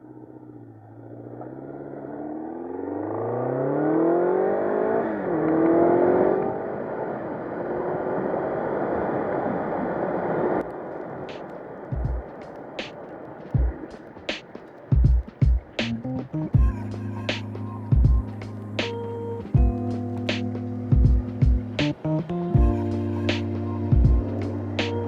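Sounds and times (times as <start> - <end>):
motorcycle engine accelerating: 0.1 - 7.0, 15.8 - 25.0
wind and road noise: 0.1 - 16.6.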